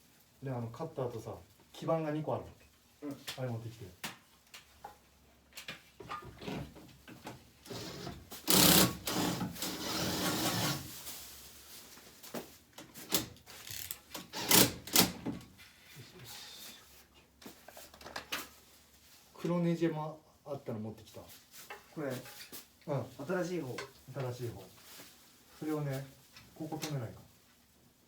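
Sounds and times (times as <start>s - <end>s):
tools clicking and knocking: 13.1s - 15.2s
cordless screwdriver driving screw: 13.6s - 14.7s.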